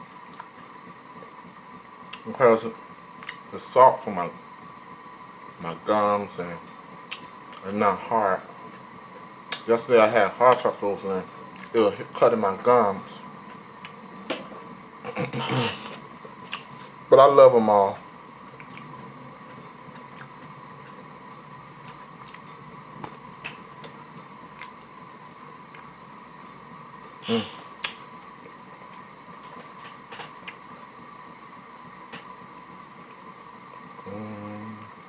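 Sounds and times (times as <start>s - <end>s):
faint steady hum: 0.0s - 35.0s
mouth clicks and smacks: 3.2s - 3.5s, 7.1s - 7.6s, 15.4s - 16.7s, 18.5s - 18.9s, 27.2s - 28.0s
person chewing food: 18.5s - 21.1s, 21.8s - 25.9s.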